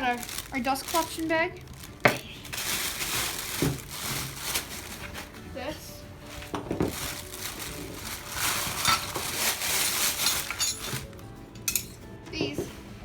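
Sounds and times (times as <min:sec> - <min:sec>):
packaging rustling: 0:00.0 - 0:05.5, 0:06.2 - 0:11.2.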